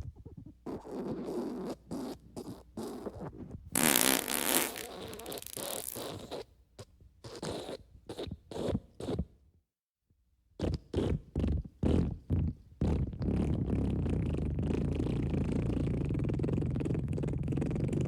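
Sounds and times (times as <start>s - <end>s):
raspy fart sounds: 3.8s - 6.4s.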